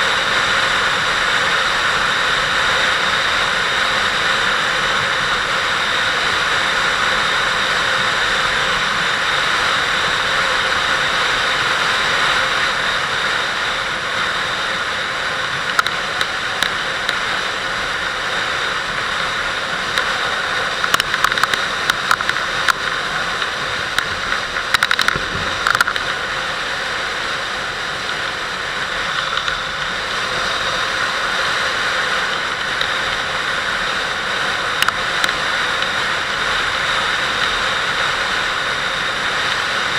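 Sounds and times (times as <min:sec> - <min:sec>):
motorcycle engine running: 0:00.0 - 0:39.9
wind rushing over microphone: 0:00.0 - 0:39.9
sharp clicks and knocks: 0:15.6 - 0:17.2, 0:20.8 - 0:26.2.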